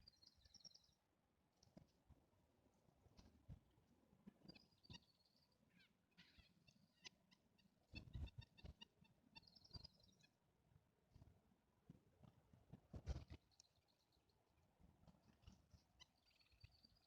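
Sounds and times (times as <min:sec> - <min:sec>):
small songbirds calling: 0:00.0 - 0:01.9, 0:04.3 - 0:10.4, 0:15.0 - 0:17.0.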